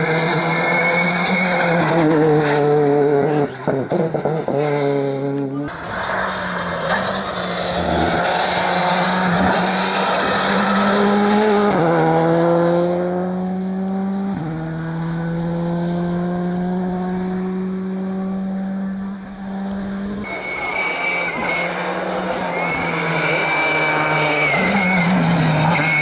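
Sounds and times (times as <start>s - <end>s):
tyre squeal: 0.0s - 11.8s, 20.2s - 26.0s
car engine accelerating hard: 0.0s - 26.0s.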